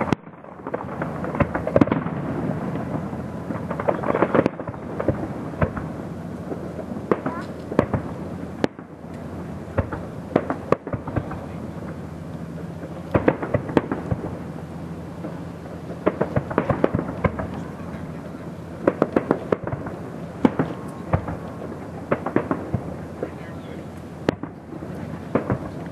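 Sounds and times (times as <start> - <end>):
fireworks bursting with sharp bangs: 0.0 - 25.9
low background rumble: 0.0 - 25.9.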